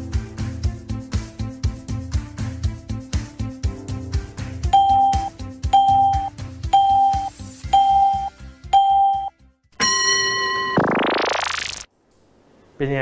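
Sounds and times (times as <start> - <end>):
music with steady beat: 0.0 - 9.3
electronic beeps: 4.8 - 11.9.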